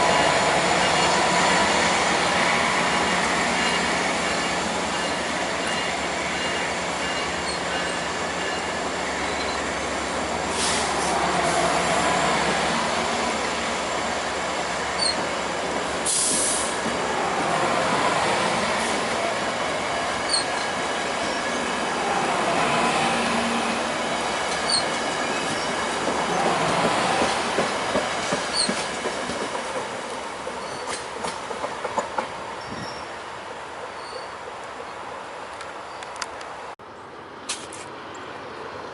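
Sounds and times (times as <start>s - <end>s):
train wheels rumbling on rails: 0.0s - 34.9s
burst of hiss: 10.5s - 11.7s, 16.0s - 16.8s.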